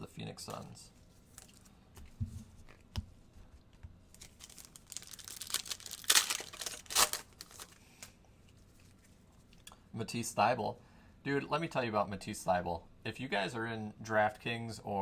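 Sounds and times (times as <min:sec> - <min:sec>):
foil wrapper tearing and crinkling: 0:04.2 - 0:08.1.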